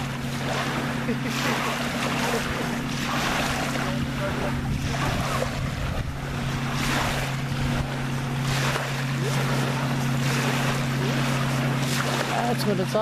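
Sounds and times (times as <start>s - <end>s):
motorboat engine droning: 0.0s - 13.0s
water noise: 0.0s - 13.0s
wind on microphone: 2.2s - 12.3s.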